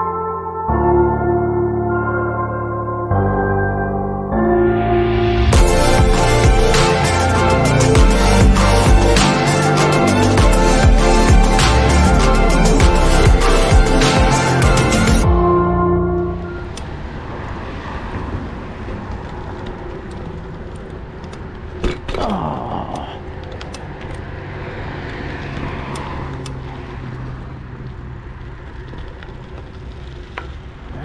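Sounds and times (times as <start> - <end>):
road traffic noise: 4.4 - 31.0
vehicle passing: 4.7 - 21.8, 23.0 - 31.0.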